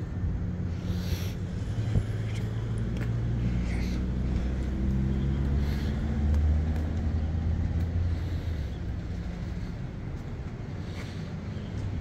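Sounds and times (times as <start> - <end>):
car engine passing: 0.5 - 10.1.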